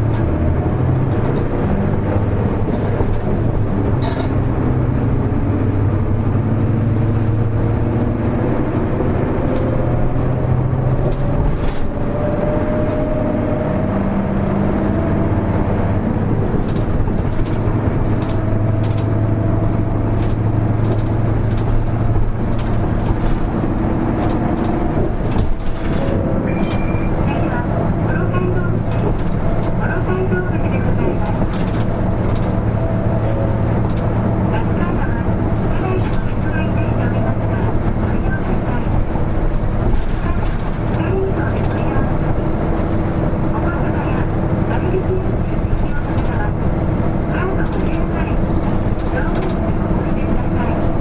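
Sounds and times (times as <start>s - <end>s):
bus engine drone: 0.0s - 51.0s
light ticks and rattles: 2.6s - 5.0s, 8.2s - 12.1s, 15.9s - 27.0s, 28.1s - 43.6s, 44.4s - 51.0s.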